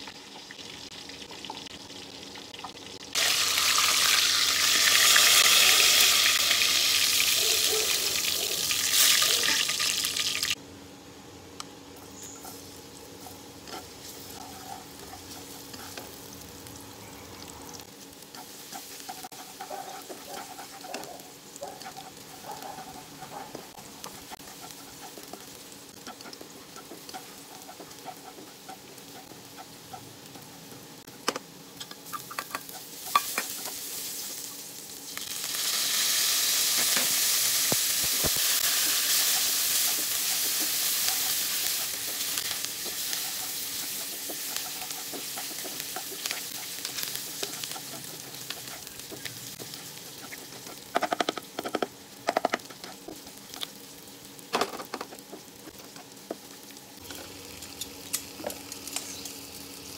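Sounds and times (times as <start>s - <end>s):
garlic sizzling in oil: 0.0s - 10.6s, 12.2s - 30.9s, 31.6s - 59.9s
spatula scraping and tapping wok: 18.3s - 21.1s, 21.8s - 30.5s, 31.2s - 33.8s, 36.8s - 53.7s.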